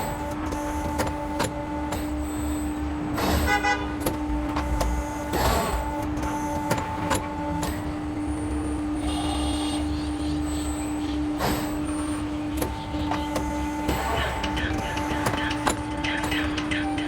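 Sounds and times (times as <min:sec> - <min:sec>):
machine humming: 0:00.0 - 0:17.0
sharp machine clicks: 0:12.5 - 0:17.0.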